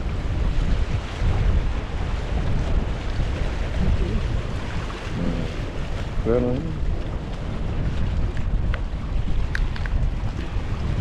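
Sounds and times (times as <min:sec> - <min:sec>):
wind buffeting microphone: 0:00.0 - 0:11.0
faint voice: 0:05.2 - 0:05.6.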